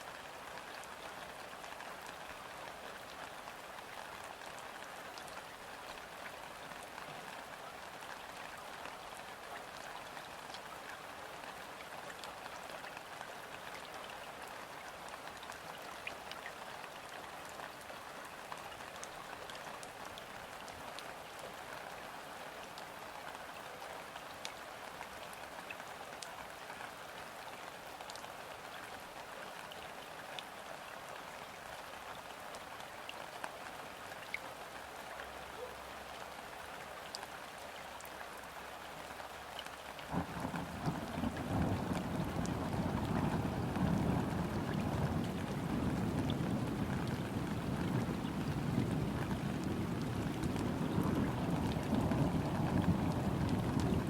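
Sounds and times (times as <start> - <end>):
rain falling on river: 0.0 - 54.0
raindrops ticking close by: 0.0 - 54.0.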